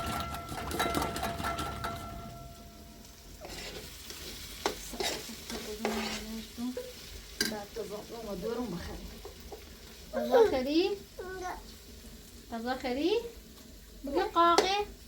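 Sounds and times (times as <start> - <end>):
spoon knocking against pan: 0.0 - 2.9
food sizzling in a pan: 0.0 - 15.0
utensil stirring food: 0.0 - 15.0.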